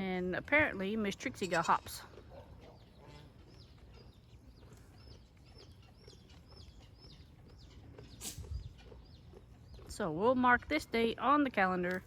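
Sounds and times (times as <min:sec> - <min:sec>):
faint bird chirping: 0:02.3 - 0:10.2.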